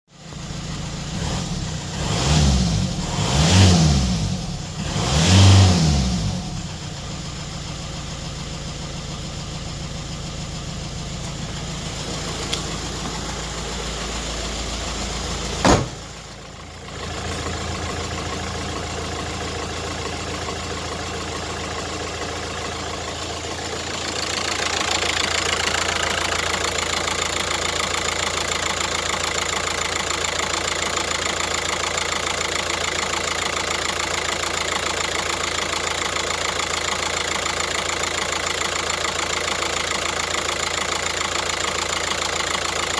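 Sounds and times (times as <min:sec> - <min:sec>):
car engine running: 0:00.2 - 0:42.9
sharp loud knock: 0:15.6 - 0:16.1.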